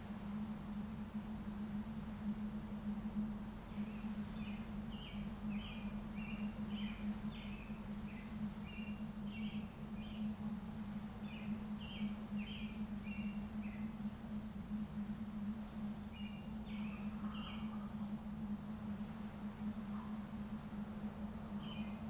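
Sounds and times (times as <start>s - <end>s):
steady low hum: 0.0s - 22.0s
small bird chirping: 16.1s - 18.1s.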